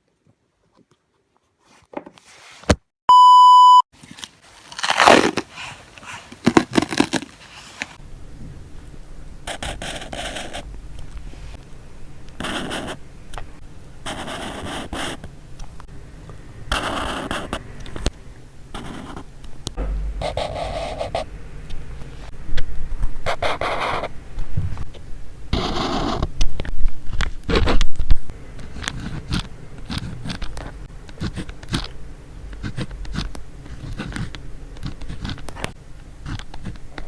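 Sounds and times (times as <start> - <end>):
loud electronic beep: 3.1 - 3.8
drawing tool scratching paper: 9.5 - 10.6, 12.4 - 13.0, 14.1 - 15.2, 16.7 - 17.6, 18.8 - 19.2, 25.5 - 26.3, 28.7 - 30.5, 31.2 - 31.9, 32.6 - 36.8.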